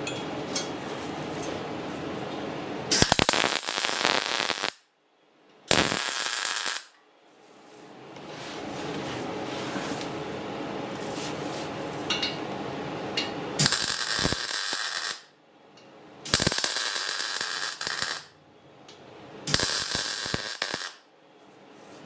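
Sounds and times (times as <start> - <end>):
welder hum: 2.9 - 4.8, 5.7 - 6.9, 13.6 - 15.3, 16.3 - 18.4, 19.5 - 21.1
welding crackling: 2.9 - 4.8, 5.7 - 6.9, 13.6 - 15.3, 16.3 - 18.4, 19.5 - 21.0.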